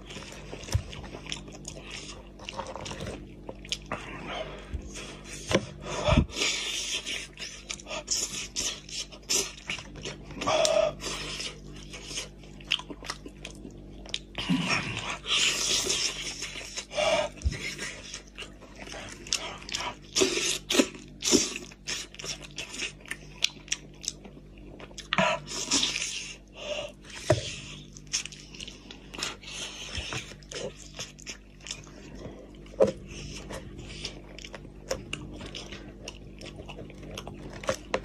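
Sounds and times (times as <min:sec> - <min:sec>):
man chewing meat: 0:00.0 - 0:38.0.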